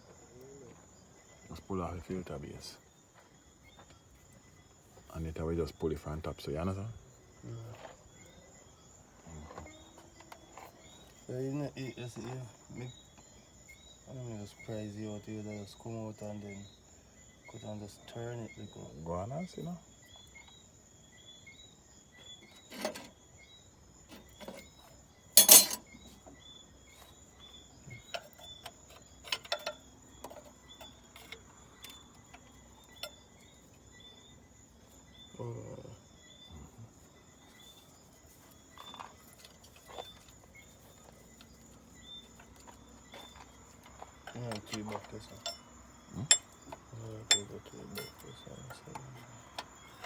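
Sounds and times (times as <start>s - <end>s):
night insects chirping: 0.0s - 50.0s
metallic clinks of hand tools: 25.4s - 25.8s, 46.2s - 46.6s, 47.2s - 48.7s.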